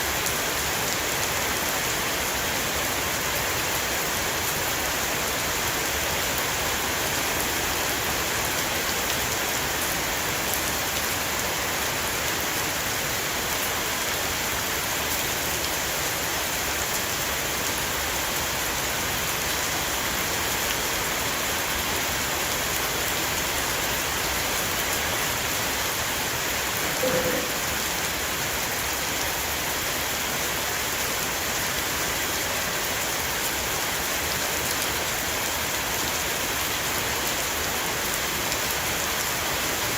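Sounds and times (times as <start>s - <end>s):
heavy rain on a roof: 0.0s - 39.9s
short tone: 26.9s - 28.3s.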